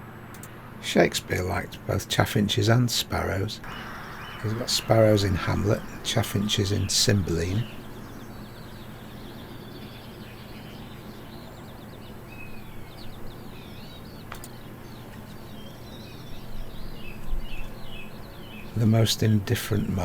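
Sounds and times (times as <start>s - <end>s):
songbirds chirping and twittering: 0.0s - 20.0s
steady low hum: 0.0s - 20.0s
sharp click: 0.3s - 0.6s.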